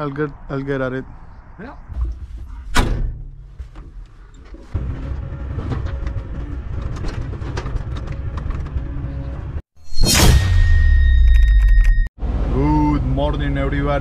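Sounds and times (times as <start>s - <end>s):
loader engine running: 4.6s - 9.6s.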